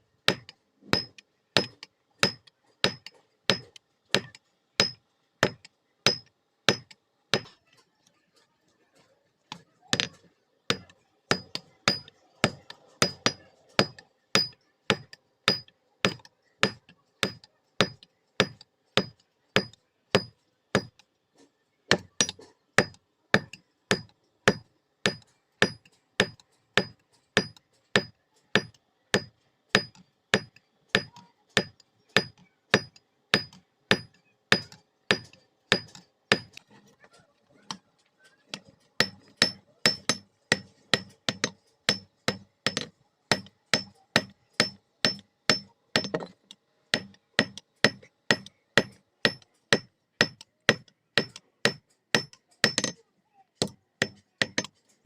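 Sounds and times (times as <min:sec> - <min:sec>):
hammer ringing on anvil: 0:10.7 - 0:20.9, 0:39.0 - 0:46.3, 0:47.0 - 0:53.0.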